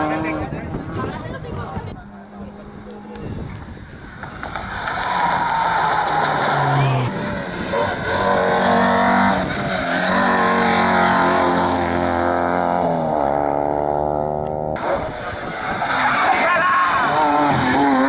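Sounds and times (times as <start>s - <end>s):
rally car engine at high revs: 4.0s - 18.0s.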